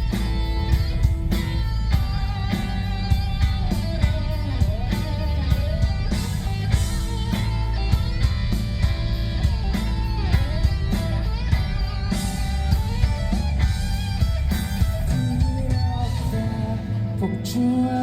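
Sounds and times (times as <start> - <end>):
steady drum beat: 0.0 - 17.2
bass guitar: 0.0 - 18.0
electric guitar: 0.0 - 18.0.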